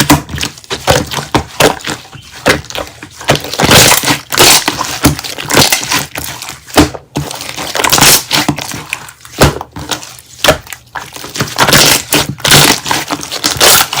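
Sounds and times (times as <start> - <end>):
slime crunching and crackling: 0.0 - 14.0.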